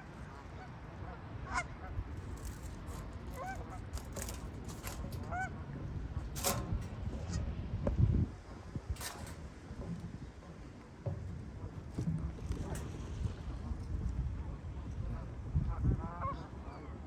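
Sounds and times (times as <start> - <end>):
geese honking: 0.0 - 6.4.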